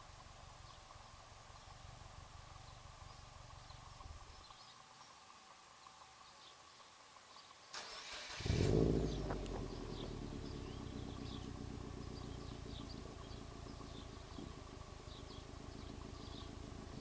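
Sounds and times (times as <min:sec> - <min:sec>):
car engine starting and idling: 0:07.7 - 0:17.0.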